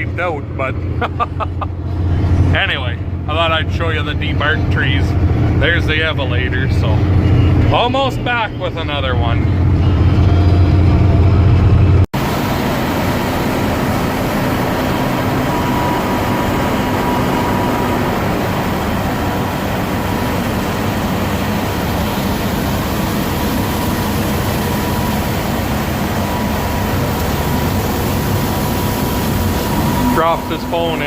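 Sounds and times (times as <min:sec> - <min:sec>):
heavy machinery rumbling: 0:00.0 - 0:31.0
faint steady whine: 0:12.2 - 0:31.0.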